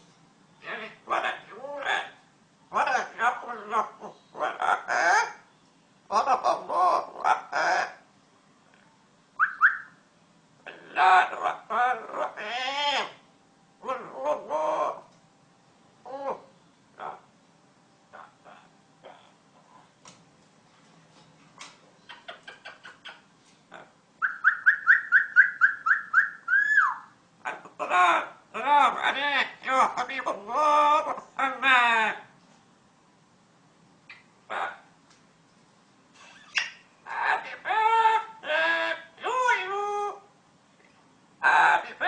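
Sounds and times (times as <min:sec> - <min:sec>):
parrot mimicking speech: 0:00.6 - 0:05.4, 0:06.1 - 0:08.0, 0:10.6 - 0:13.2, 0:13.8 - 0:15.1, 0:26.8 - 0:32.3, 0:34.5 - 0:34.9, 0:36.5 - 0:40.3, 0:41.4 - 0:42.0
parrot rising whistles: 0:09.4 - 0:10.0, 0:24.2 - 0:27.1.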